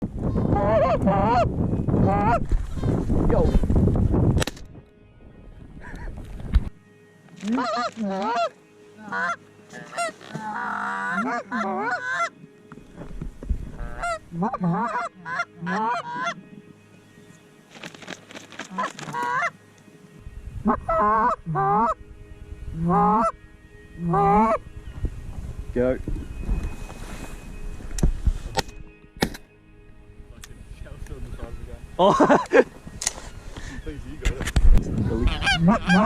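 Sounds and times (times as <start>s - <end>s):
geese honking: 0.2s - 3.1s, 7.3s - 17.0s, 18.1s - 24.8s, 35.0s - 36.0s.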